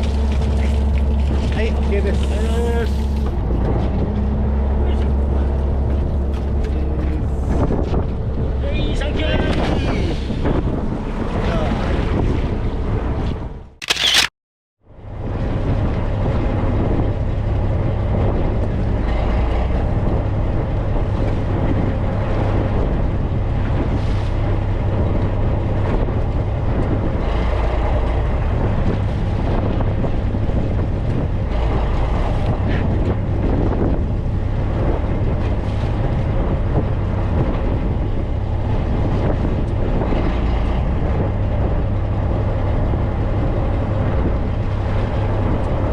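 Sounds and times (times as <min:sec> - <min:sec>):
vehicle engine hum: 0:00.0 - 0:09.2, 0:16.2 - 0:45.9.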